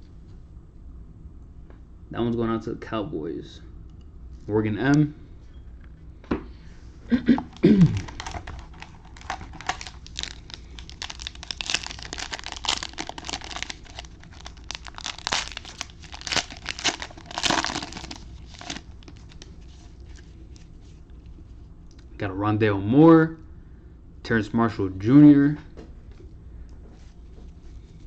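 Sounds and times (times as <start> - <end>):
wrapper crinkling and tearing: 7.4 - 21.0.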